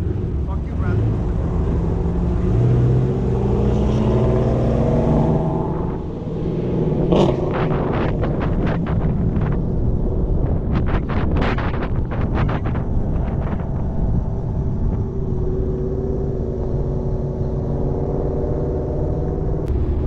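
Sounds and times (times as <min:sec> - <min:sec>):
car engine pulling away: 0:00.0 - 0:20.0
wind buffeting microphone: 0:00.0 - 0:20.0.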